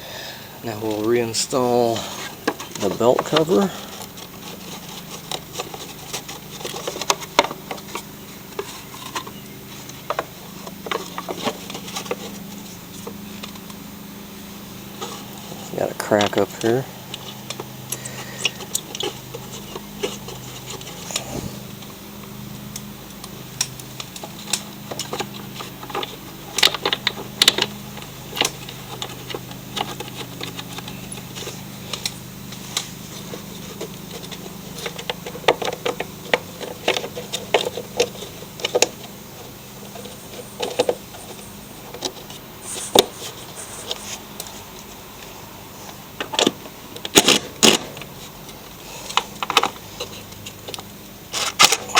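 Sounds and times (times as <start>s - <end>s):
steady low hum: 0.0s - 51.9s
hand tools and bolts clinking: 0.7s - 12.4s.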